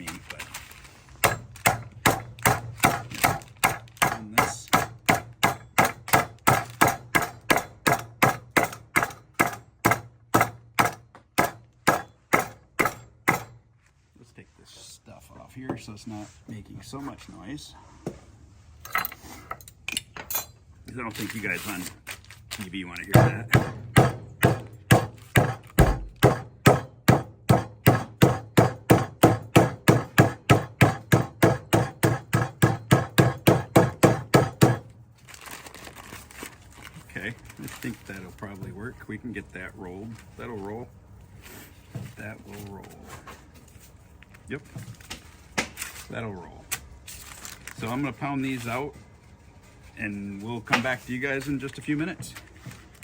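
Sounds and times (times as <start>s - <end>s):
meat hammer pounding beef: 1.2s - 13.6s, 23.1s - 34.9s.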